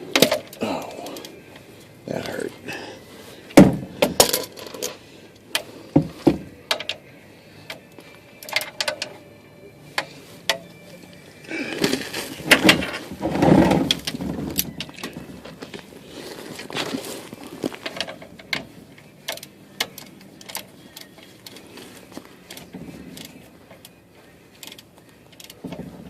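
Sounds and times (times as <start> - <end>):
hand tools clicking against metal: 6.7 - 7.0, 7.6 - 9.2, 17.8 - 21.7, 22.4 - 25.9
scraping and rustling: 11.7 - 18.9.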